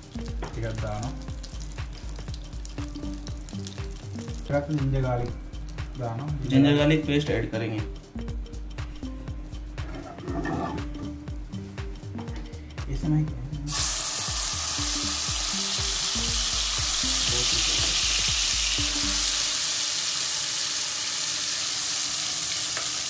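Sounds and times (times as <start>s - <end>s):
paste sizzling in hot oil: 0.6s - 6.1s, 13.7s - 23.0s.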